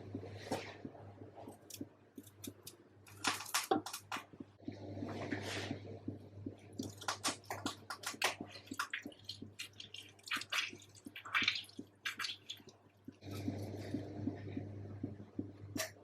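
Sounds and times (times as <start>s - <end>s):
water splashing: 6.5s - 16.0s.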